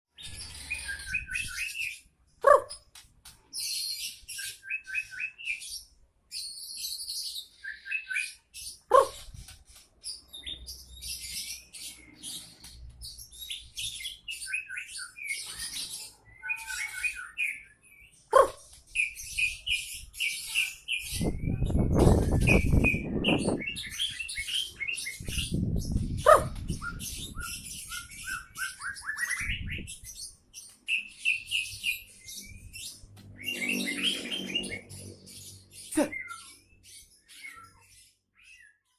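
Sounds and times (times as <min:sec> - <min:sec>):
songbird chirping: 0:00.1 - 0:38.9
loud low bird notes: 0:32.4 - 0:36.5.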